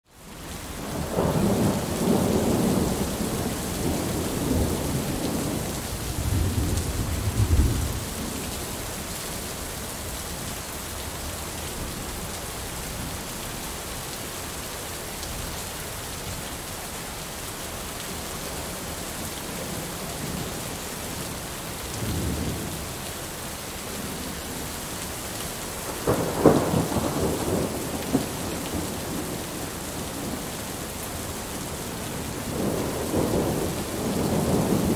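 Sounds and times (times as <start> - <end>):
heavy rain hissing: 0.3 - 34.9
thunder rumbling: 0.9 - 8.5, 25.8 - 30.6, 31.3 - 34.9.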